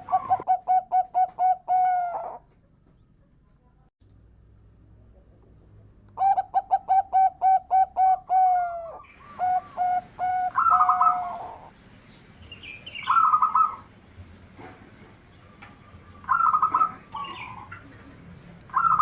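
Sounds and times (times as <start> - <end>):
dove cooing: 0.0 - 2.8, 6.2 - 11.8, 12.8 - 13.9, 15.5 - 18.1, 18.7 - 19.0.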